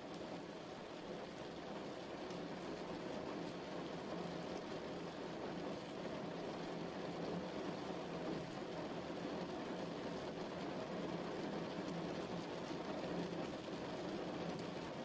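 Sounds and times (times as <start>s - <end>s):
steady rainfall: 0.0s - 15.0s.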